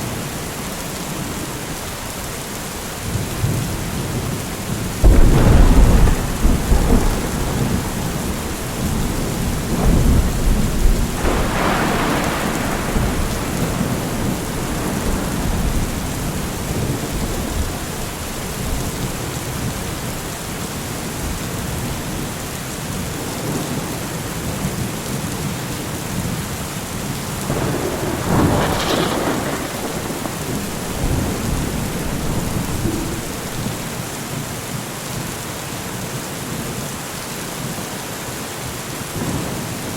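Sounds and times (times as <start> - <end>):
steady rain: 0.0 - 39.9
rolling thunder: 3.1 - 20.4, 27.2 - 34.4.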